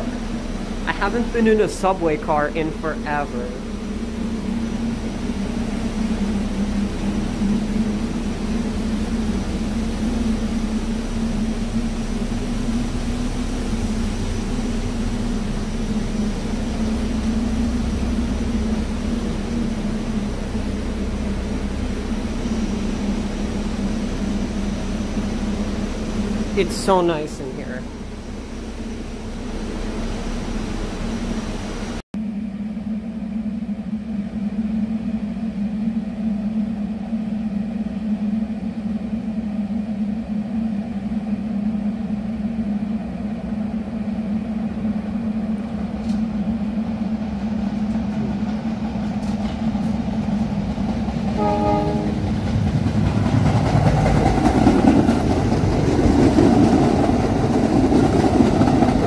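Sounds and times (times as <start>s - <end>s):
steady low hum: 0.0s - 59.0s
train rumbling past: 0.0s - 59.0s
train horn blast: 51.3s - 52.5s.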